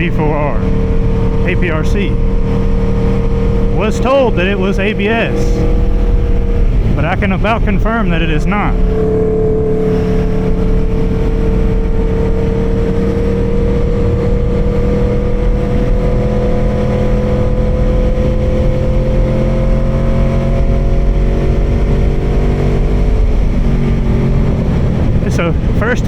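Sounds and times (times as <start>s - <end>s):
motorcycle engine running steadily: 0.0s - 26.0s
wind and road rumble: 0.0s - 26.0s.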